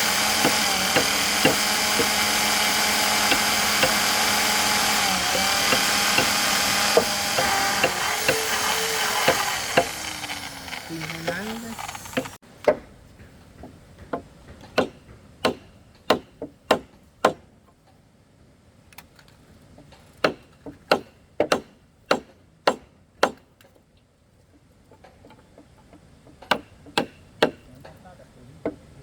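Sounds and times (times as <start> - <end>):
blade chopping: 0.0 - 12.4.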